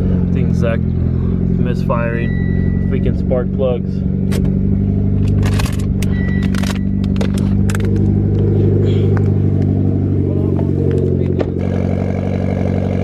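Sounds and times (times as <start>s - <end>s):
car engine idling with misfire: 0.0s - 13.0s.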